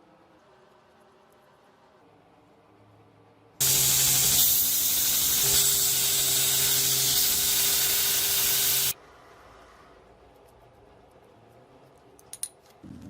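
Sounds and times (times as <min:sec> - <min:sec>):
loud steady hiss: 0:03.6 - 0:09.0.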